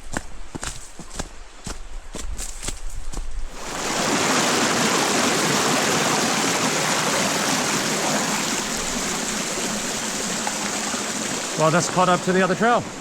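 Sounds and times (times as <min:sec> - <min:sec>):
creek rushing over rocks: 0:03.5 - 0:13.0.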